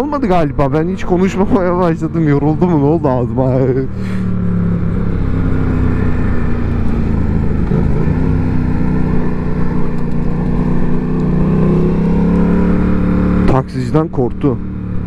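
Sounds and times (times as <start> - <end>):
motorcycle engine at low revs: 0.0 - 15.0.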